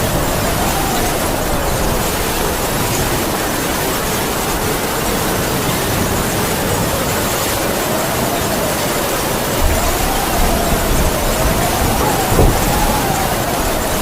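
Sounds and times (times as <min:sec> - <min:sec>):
heavy rain: 0:00.0 - 0:14.0
howling wind: 0:00.0 - 0:14.0.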